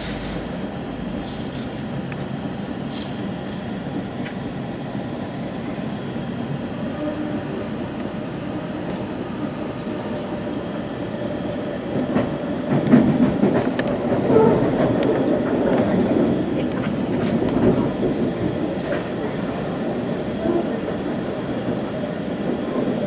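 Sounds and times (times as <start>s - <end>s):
train rumble from inside coach: 0.0s - 23.0s.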